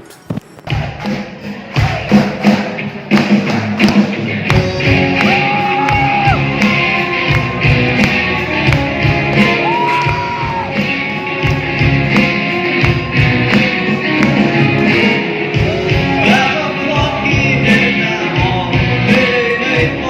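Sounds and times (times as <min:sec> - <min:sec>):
band with drums: 0:00.0 - 0:20.0
man singing: 0:15.7 - 0:20.0.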